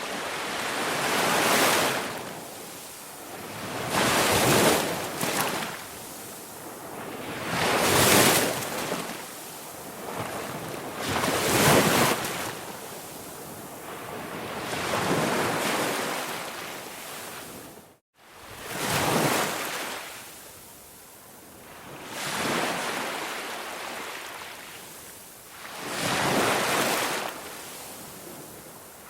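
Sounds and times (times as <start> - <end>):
ocean surf washing in: 0.0 - 17.6.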